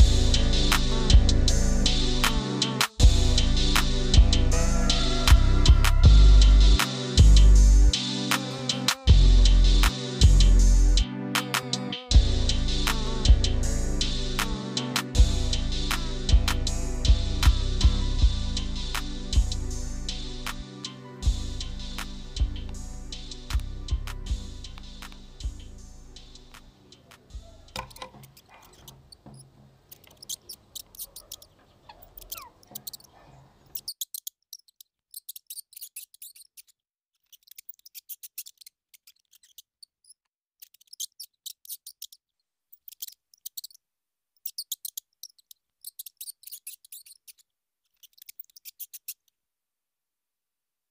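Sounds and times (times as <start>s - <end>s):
background music: 0.0s - 28.7s
small bird chirping: 24.3s - 43.8s, 44.4s - 49.3s.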